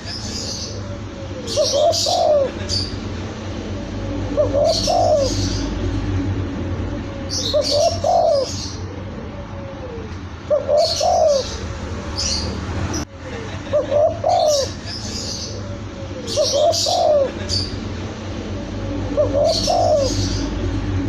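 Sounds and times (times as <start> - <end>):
small birds chirping: 0.0 - 6.2, 14.2 - 20.8
dove cooing: 0.4 - 12.6, 13.7 - 20.9.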